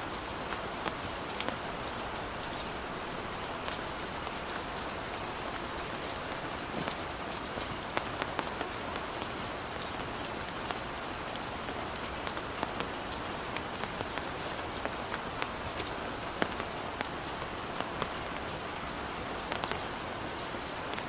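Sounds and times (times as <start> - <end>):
heavy rain: 0.0 - 21.0.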